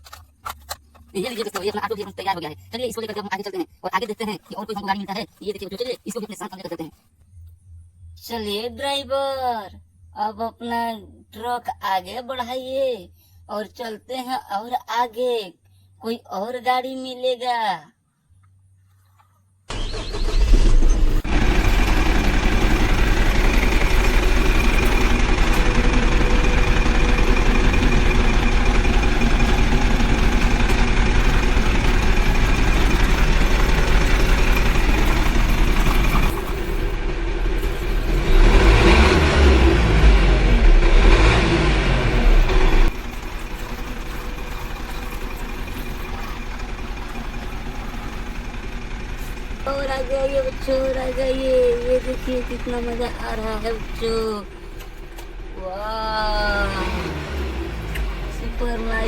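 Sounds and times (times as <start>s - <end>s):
truck engine rumbling: 19.7s - 59.0s.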